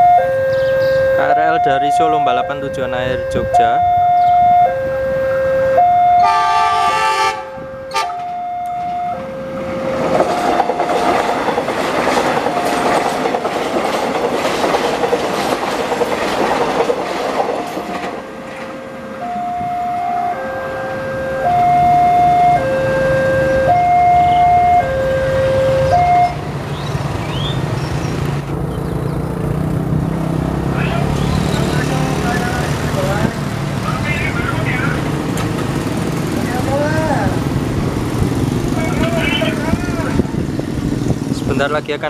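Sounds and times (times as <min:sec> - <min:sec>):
two-tone crossing alarm: 0:00.0 - 0:13.4, 0:17.5 - 0:26.5
low hum of approaching train: 0:00.0 - 0:42.0
train wheels rushing on rails: 0:07.8 - 0:20.1, 0:30.8 - 0:42.0.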